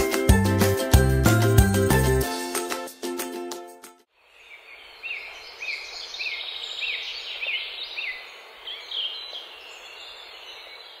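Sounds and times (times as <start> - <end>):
birds singing: 4.3 - 11.0.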